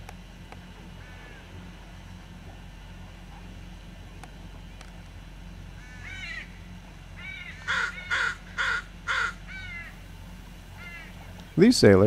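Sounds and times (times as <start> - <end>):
thinner bird calls: 0.9 - 1.7, 5.7 - 11.6
crows cawing: 1.0 - 1.6, 5.8 - 10.0, 10.7 - 11.4.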